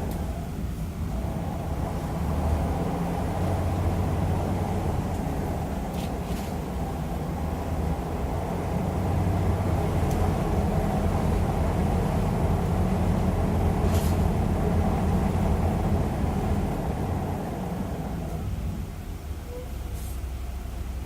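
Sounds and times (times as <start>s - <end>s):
bus diesel engine droning: 0.0s - 21.0s
air hiss: 19.8s - 20.4s.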